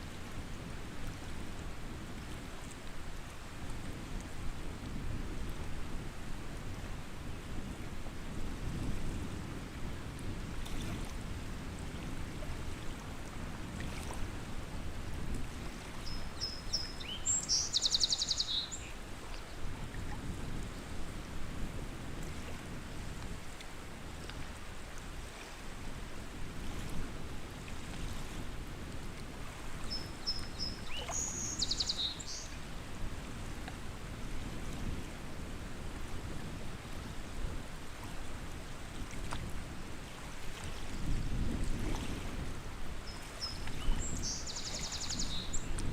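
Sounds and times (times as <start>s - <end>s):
wind and water wash: 0.0s - 45.9s
songbird singing: 16.0s - 19.0s, 29.9s - 32.6s, 43.0s - 45.9s.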